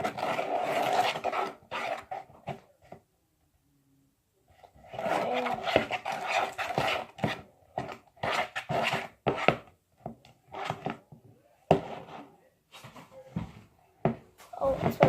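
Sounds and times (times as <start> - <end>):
spoon stirring slime: 4.5 - 9.7.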